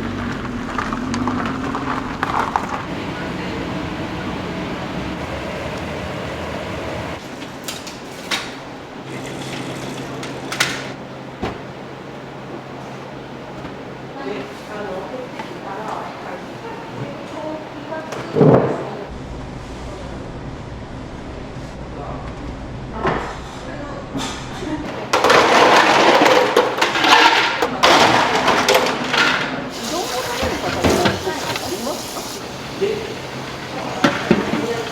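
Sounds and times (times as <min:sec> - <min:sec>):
kitchen utensils clattering: 0:07.7 - 0:11.0, 0:24.9 - 0:34.9
batter frying in hot oil: 0:29.7 - 0:34.9.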